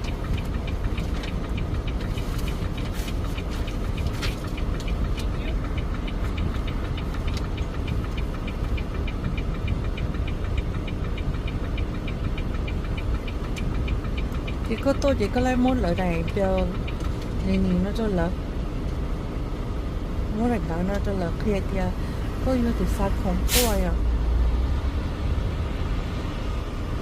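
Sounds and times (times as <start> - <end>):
fast even ticking: 0.0 - 18.3
diesel truck engine idling: 0.0 - 27.0.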